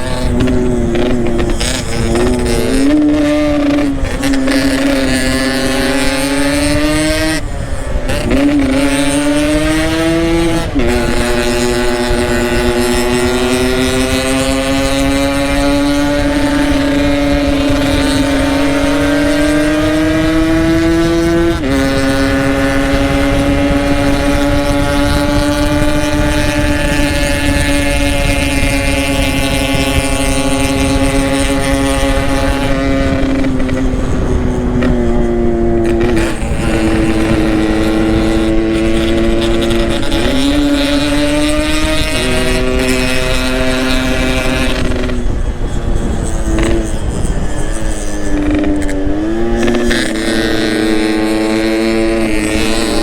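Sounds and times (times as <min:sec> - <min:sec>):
two-stroke motorcycle engine: 0:00.0 - 0:53.0
wind noise: 0:00.0 - 0:53.0.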